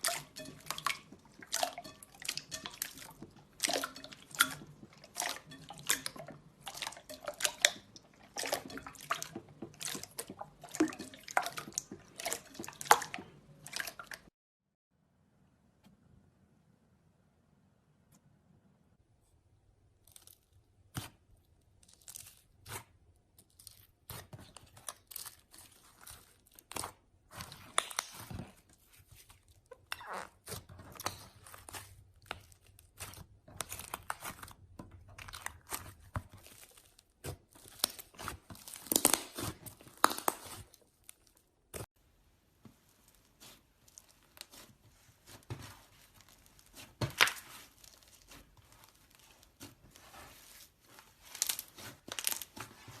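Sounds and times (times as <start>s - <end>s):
slime crackling and popping: 31.2s - 41.8s, 51.1s - 52.9s.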